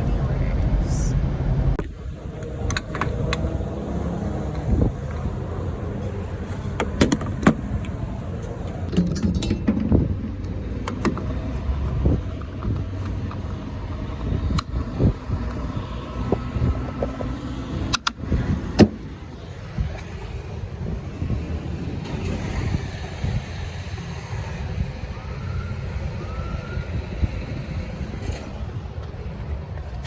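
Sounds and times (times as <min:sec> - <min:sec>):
car rumble from inside: 0:00.0 - 0:29.4
sharp clicks and knocks: 0:01.8 - 0:03.4, 0:06.8 - 0:08.0, 0:08.7 - 0:13.5.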